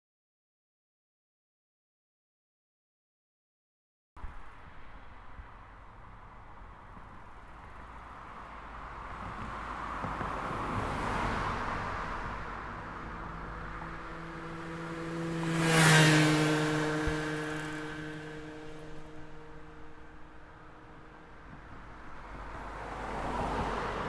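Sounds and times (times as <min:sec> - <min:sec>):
vehicles passing on road: 0:04.2 - 0:24.0.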